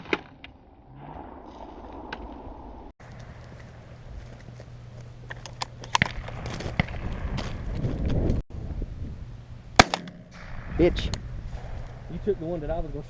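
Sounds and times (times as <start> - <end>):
shotgun blast: 9.8 - 12.0.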